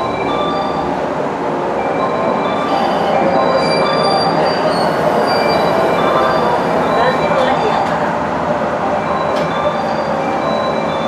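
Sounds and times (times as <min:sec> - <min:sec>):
train rolling rumble: 0:00.0 - 0:11.0
train wheels and brakes squealing: 0:02.0 - 0:08.1, 0:09.2 - 0:11.0.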